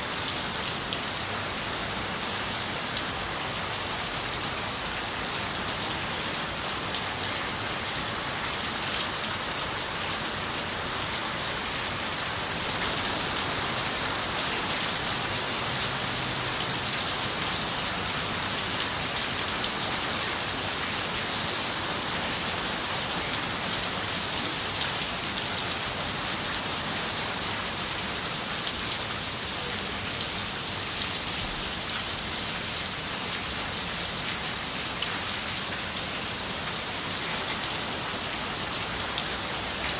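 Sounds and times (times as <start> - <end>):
rain on a window: 12.2 - 39.9.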